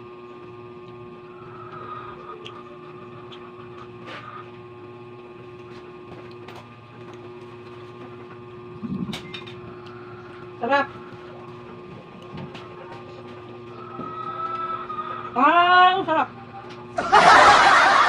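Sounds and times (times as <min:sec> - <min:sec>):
electrical appliance hum: 0:00.0 - 0:18.0.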